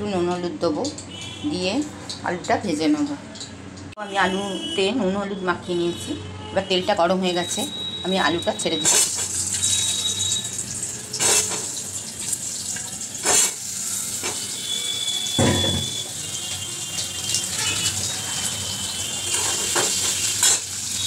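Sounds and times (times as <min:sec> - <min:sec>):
potatoes sizzling in hot oil: 0:08.6 - 0:21.0.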